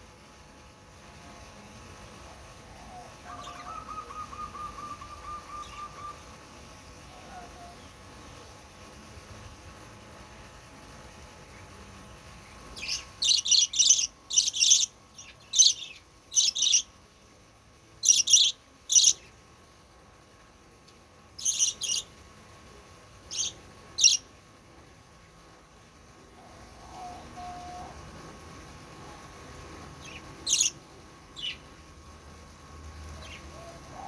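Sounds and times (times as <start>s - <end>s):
bird calling in sharp high notes: 3.3s - 6.3s.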